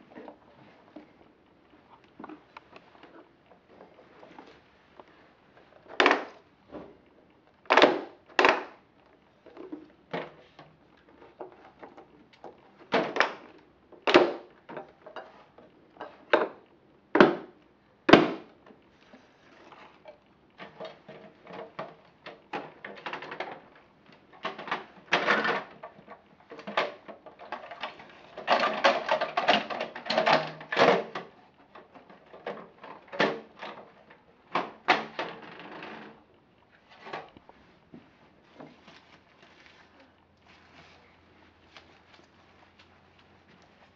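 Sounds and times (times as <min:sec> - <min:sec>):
plastic toys knocking and clacking: 0:05.8 - 0:06.4, 0:07.7 - 0:08.8, 0:09.5 - 0:15.4, 0:16.0 - 0:18.7, 0:20.0 - 0:36.3
plastic toys rattling: 0:24.3 - 0:36.2.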